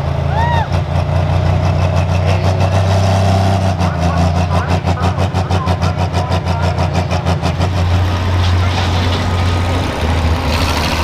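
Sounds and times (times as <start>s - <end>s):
large engine idling: 0.0s - 2.9s, 3.6s - 11.0s.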